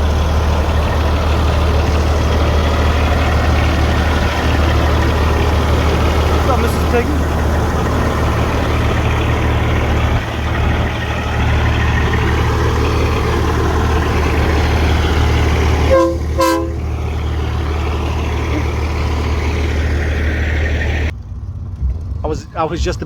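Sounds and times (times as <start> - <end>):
diesel truck engine idling: 0.0 - 23.0
short horn toots: 15.8 - 16.9.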